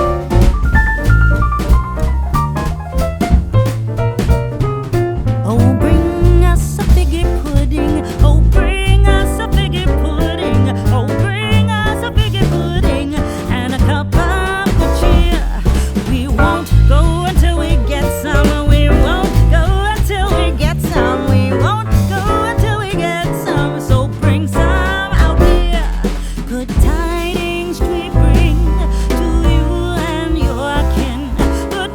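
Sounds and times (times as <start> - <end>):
background music with bass beat: 0.0 - 5.4.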